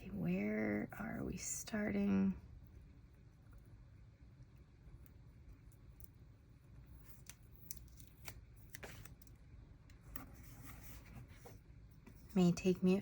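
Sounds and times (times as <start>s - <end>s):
paper rustling and clicking: 7.1s - 9.4s.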